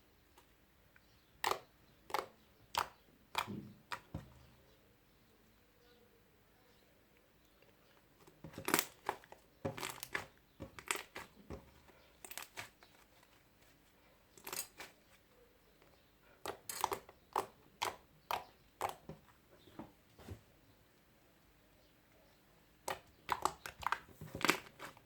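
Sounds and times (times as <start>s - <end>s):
slime crackling and popping: 8.5s - 11.4s.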